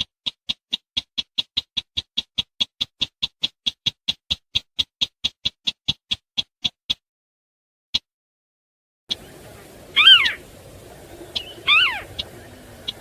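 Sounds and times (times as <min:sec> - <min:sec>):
bird call of short sharp notes: 0:09.1 - 0:10.5, 0:11.1 - 0:13.0.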